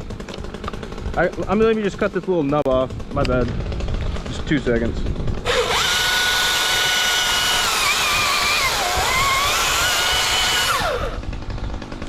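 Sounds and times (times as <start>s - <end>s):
chainsaw whining and cutting: 0.0s - 1.9s, 5.0s - 12.0s.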